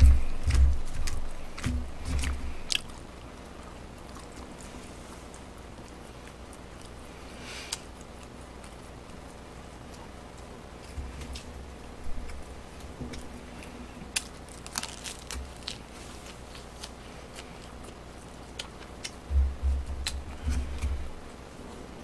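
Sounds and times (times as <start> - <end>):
dull low thumps: 0.0 - 2.6, 19.3 - 21.2
person chewing food: 0.0 - 22.0.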